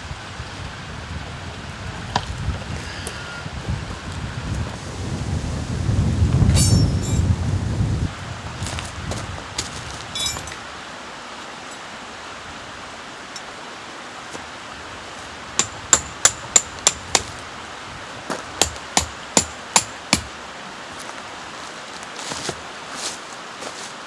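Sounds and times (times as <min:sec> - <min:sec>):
stream rushing: 0:00.0 - 0:24.0
hammer strikes: 0:06.5 - 0:07.3, 0:15.6 - 0:17.0, 0:18.6 - 0:20.3.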